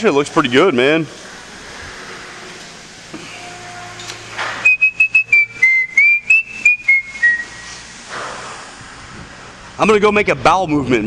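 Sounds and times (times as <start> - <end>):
person whistling a tune: 4.6 - 7.8.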